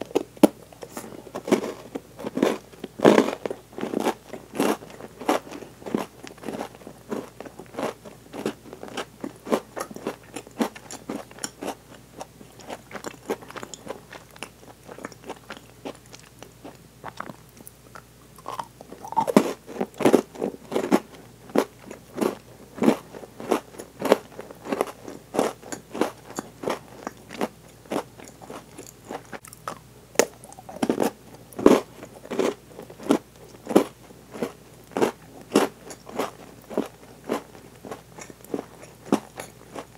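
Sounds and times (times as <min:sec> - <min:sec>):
chewing and crunching chocolate: 0:00.0 - 0:39.9.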